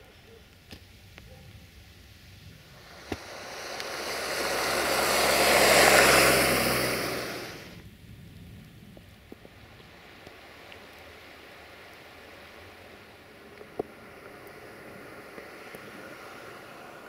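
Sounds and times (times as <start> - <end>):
diesel train passing: 2.7 - 7.8, 13.3 - 17.0.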